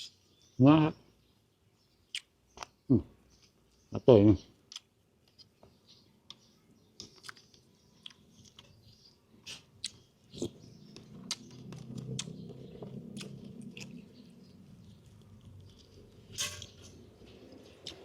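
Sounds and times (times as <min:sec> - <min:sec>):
person chewing food: 0:04.6 - 0:18.0.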